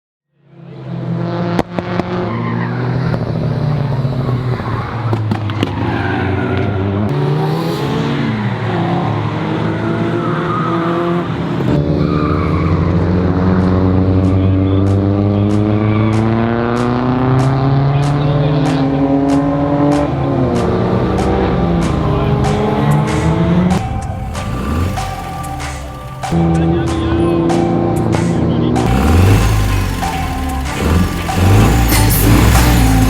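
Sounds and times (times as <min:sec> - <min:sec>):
car engines revving: 0:00.5 - 0:33.0
tyre squeal: 0:21.6 - 0:26.4.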